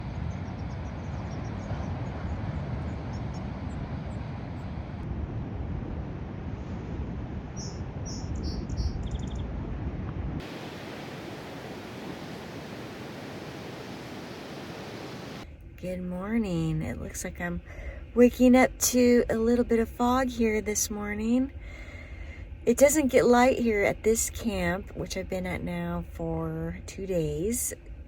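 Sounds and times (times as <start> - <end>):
low outdoor rumble: 0.0 - 28.0
small birds chirping and trilling: 7.6 - 9.4
flat hiss: 10.4 - 15.4.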